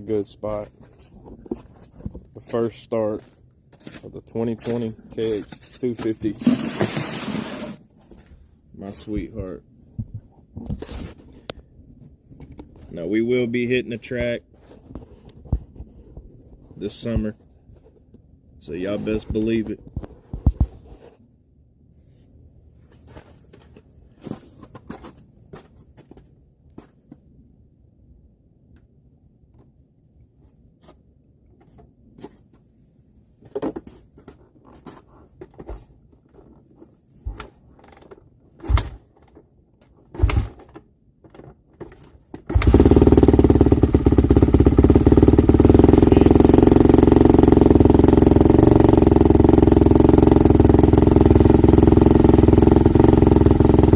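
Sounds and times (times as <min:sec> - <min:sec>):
dirt bike engine running: 0:40.2 - 0:40.6, 0:42.5 - 0:53.9
heavy kick-start kicks: 0:40.2 - 0:40.6.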